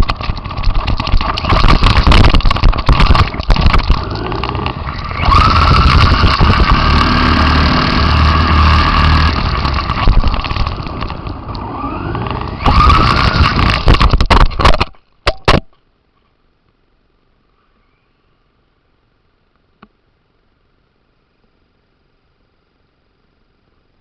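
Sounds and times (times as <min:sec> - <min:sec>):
sharp knocks and rattles: 0:00.0 - 0:11.6, 0:12.2 - 0:15.8
electric motor whining: 0:00.0 - 0:14.2.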